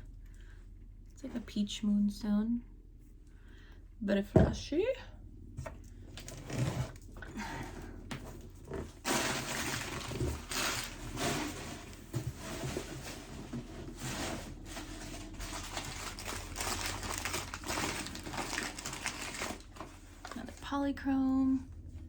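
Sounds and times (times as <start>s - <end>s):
paper crinkling and rustling: 8.8s - 20.7s.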